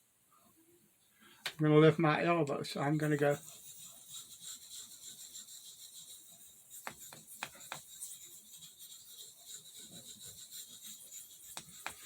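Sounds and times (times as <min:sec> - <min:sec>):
knife blade scraping on whetstone: 0:02.9 - 0:12.0.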